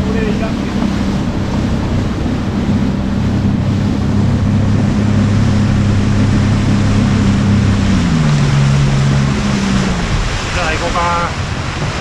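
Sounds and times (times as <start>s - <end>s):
boat engine humming: 0.0s - 12.0s
water washing: 0.0s - 12.0s
wind on microphone: 0.0s - 12.0s.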